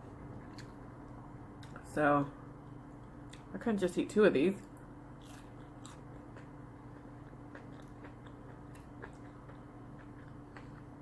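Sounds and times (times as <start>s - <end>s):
chewing food: 0.0s - 1.9s, 2.6s - 3.6s, 4.6s - 11.0s
steady low hum: 0.0s - 11.0s.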